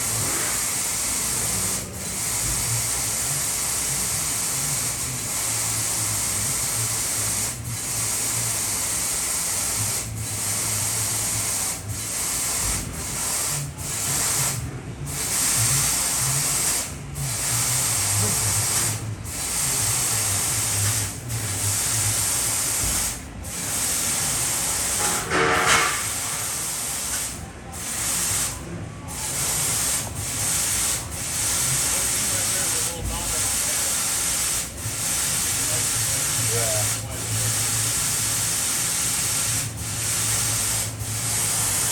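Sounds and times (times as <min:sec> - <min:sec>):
high hiss of laser cutting gas: 0:21.7 - 0:28.6.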